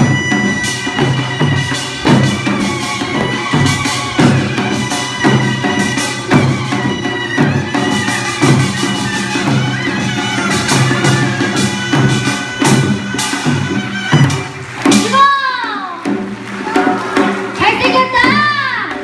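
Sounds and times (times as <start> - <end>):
wind instrument melody: 0.0 - 16.5
drum strokes: 0.0 - 19.0.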